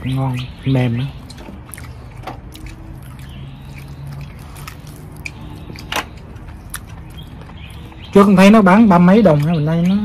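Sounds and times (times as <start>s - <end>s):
man chewing meat: 1.1s - 8.2s
wet mouth clicks: 1.3s - 5.9s.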